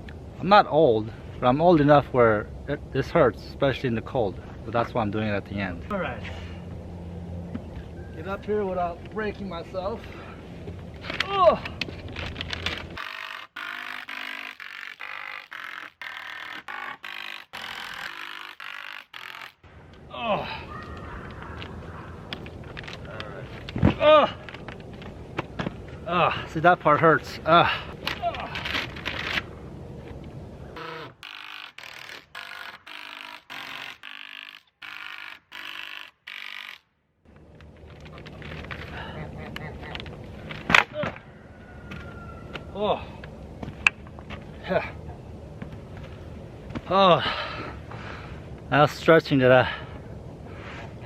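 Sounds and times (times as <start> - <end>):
cordless drill driving screws: 13.0 - 19.5, 30.8 - 36.8.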